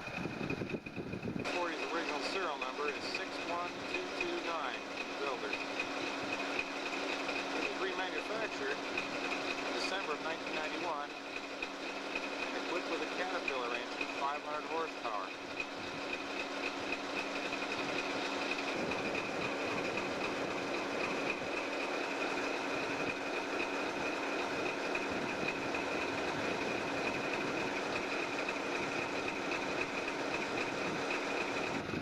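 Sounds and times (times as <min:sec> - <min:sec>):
diesel locomotive rumbling: 0:00.0 - 0:32.0.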